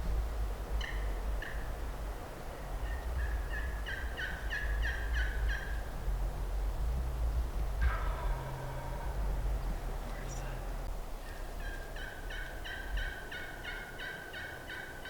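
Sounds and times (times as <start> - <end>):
wind rumble on microphone: 0.0 - 14.8
turkey yelps: 3.2 - 5.8, 7.8 - 9.2, 11.3 - 15.0.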